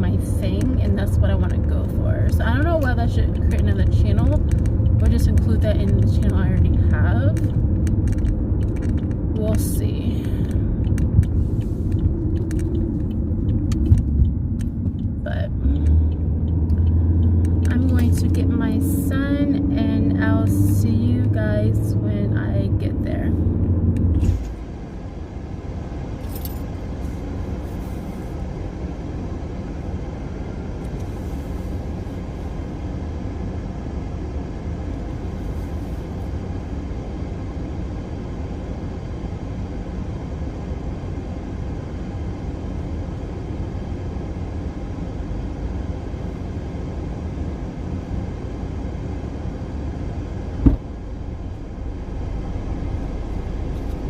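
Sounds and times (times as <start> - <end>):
car cabin rumble: 0.0 - 54.0
sharp knock: 50.6 - 50.9.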